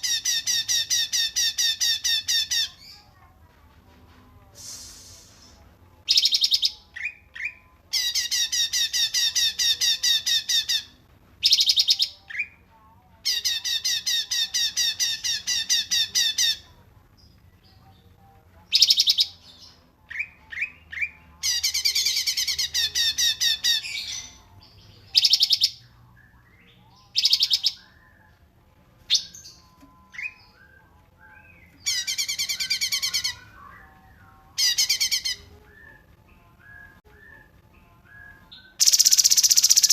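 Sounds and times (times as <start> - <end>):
sharp bird calls: 38.8 - 39.9
songbird trilling: 38.8 - 39.9.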